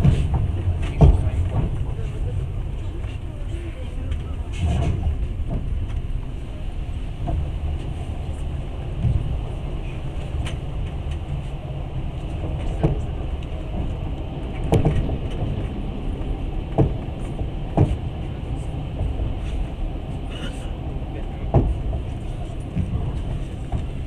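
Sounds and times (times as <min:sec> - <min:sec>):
train carriage rumble: 0:00.0 - 0:24.0
train wheels knocking: 0:12.4 - 0:18.0.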